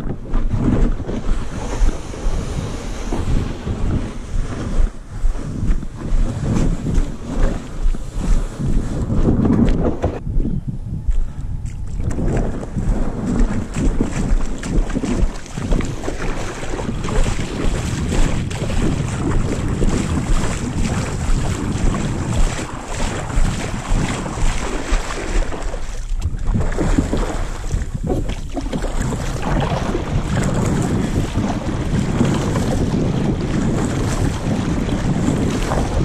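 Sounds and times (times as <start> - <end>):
water washing around kayak: 0.0 - 10.2, 11.7 - 36.0
wind buffeting microphone: 0.0 - 36.0.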